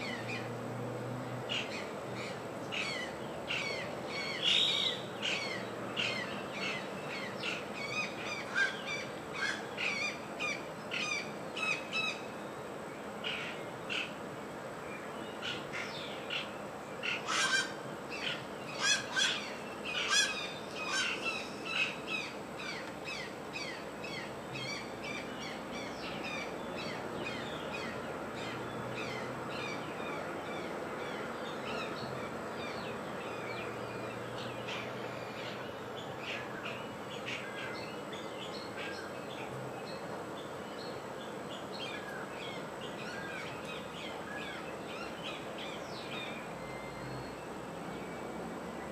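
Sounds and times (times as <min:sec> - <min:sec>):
birds chirping: 0:01.5 - 0:14.2.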